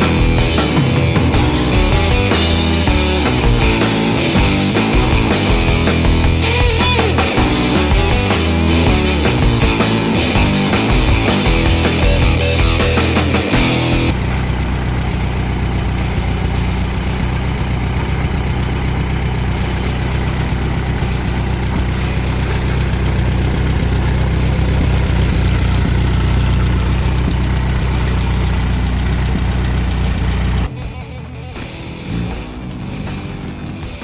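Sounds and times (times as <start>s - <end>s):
music: 0.0s - 14.2s, 30.6s - 34.0s
car engine idling: 0.0s - 34.0s.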